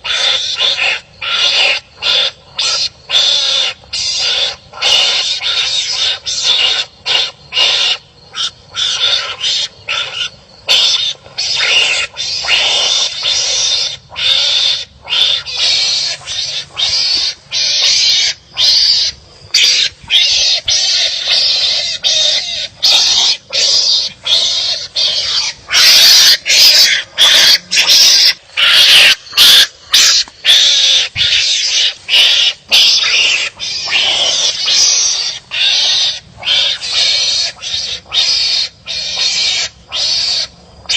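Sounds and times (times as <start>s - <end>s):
animals making harsh raspy calls: 0.0s - 40.9s.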